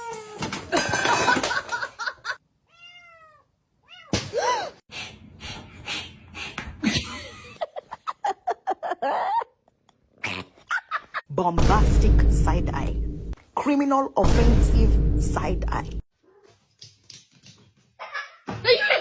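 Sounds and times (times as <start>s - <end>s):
cat meowing: 2.7s - 4.2s.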